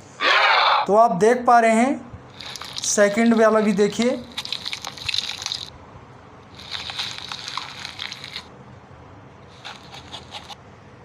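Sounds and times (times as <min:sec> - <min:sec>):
crackling crunching clicks: 0:02.3 - 0:05.7, 0:06.6 - 0:08.5.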